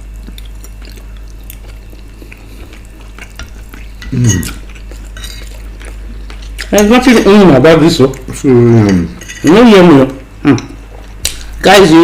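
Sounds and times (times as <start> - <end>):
cutlery scraping a plate: 3.4 - 5.5, 8.9 - 9.6.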